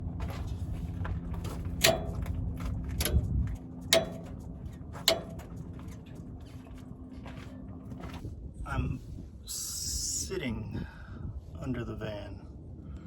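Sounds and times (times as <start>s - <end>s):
hollow metallic clanks: 0.0s - 8.3s
low rumble: 0.0s - 10.0s.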